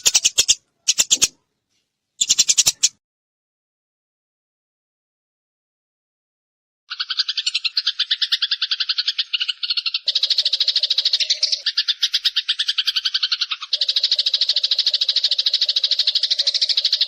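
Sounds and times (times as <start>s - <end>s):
sparrows chirping: 0.0s - 1.4s, 2.2s - 3.0s, 6.9s - 17.0s.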